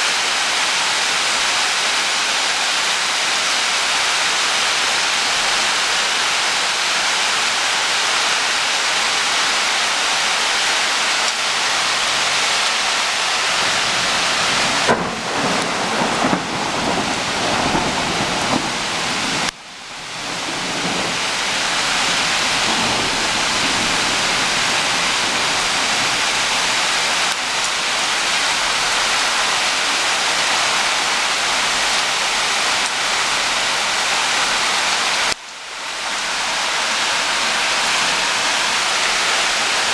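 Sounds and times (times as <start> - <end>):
heavy rain pouring: 0.0 - 39.9
thunder rumble: 13.2 - 29.0.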